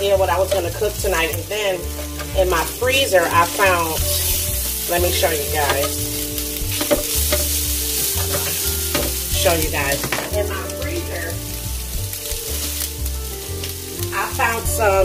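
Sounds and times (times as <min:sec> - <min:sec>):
meat and vegetables sizzling: 0:00.0 - 0:15.0
metal spatula scraping: 0:01.8 - 0:10.2.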